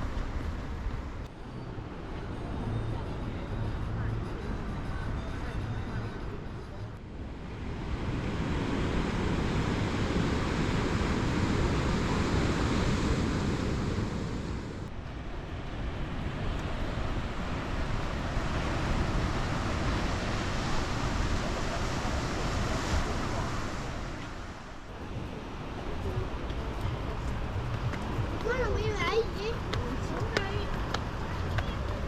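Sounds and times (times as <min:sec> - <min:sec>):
sea waves washing onto shore: 0:07.4 - 0:32.0.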